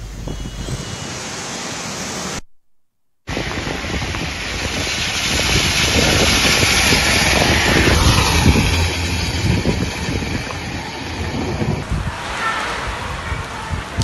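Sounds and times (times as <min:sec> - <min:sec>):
heavy rain: 0:03.3 - 0:14.0
vehicles passing on wet road: 0:03.3 - 0:14.0
wind rumble on microphone: 0:03.3 - 0:14.0.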